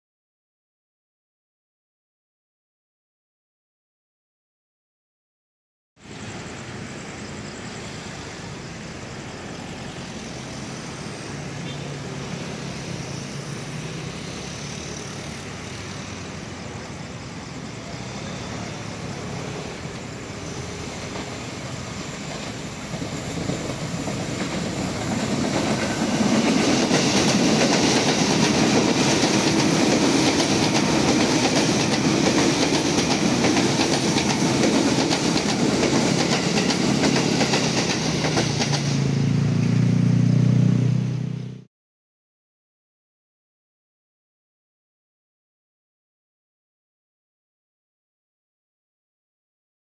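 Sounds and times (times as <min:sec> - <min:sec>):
electric train running past: 0:06.0 - 0:41.7.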